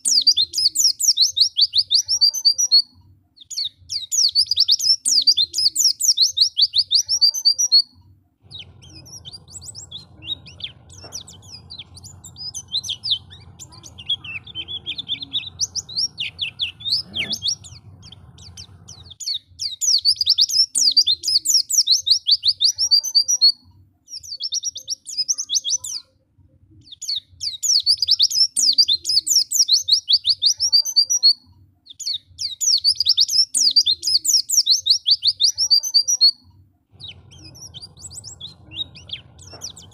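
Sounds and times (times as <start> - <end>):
bird twittering song: 0.0 - 26.2, 26.8 - 39.9
low hum: 8.4 - 19.2, 36.9 - 39.9.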